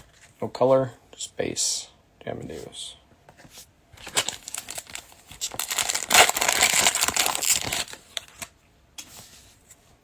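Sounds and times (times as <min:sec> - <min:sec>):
plastic wrapper tearing and crinkling: 0:04.0 - 0:08.5.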